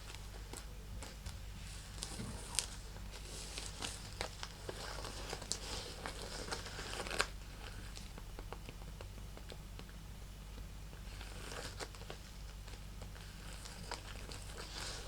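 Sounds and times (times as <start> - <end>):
handbag crinkling and rustling: 0.0 - 7.8, 11.1 - 15.0.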